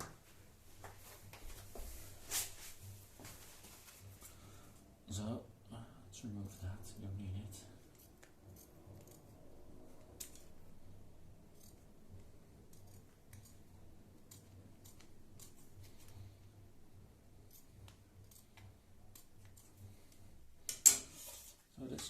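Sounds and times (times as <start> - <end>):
faint scissors snipping: 14.2 - 15.8, 17.5 - 20.2.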